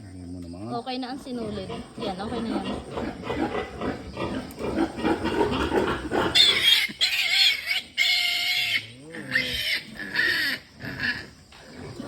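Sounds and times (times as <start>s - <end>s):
pigs grunting: 0.0s - 12.0s
piglets squealing: 4.7s - 11.3s.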